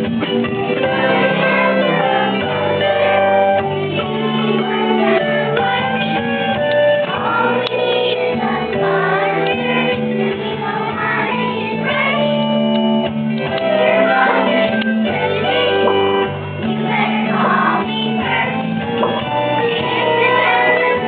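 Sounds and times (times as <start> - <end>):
instrumental accompaniment: 0.0 - 21.0
children singing: 0.8 - 6.3, 7.0 - 21.0.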